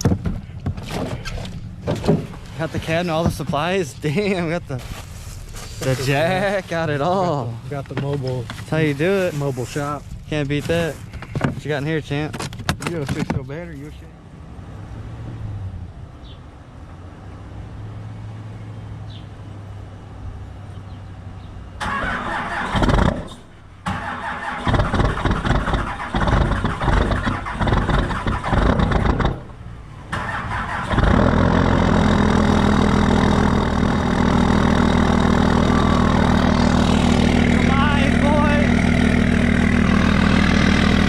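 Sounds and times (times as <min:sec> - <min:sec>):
diesel engine running: 0:00.0 - 0:12.2, 0:21.8 - 0:41.0
low engine hum: 0:00.0 - 0:12.3, 0:24.7 - 0:41.0
diesel engine cranking: 0:00.0 - 0:13.6, 0:21.8 - 0:41.0.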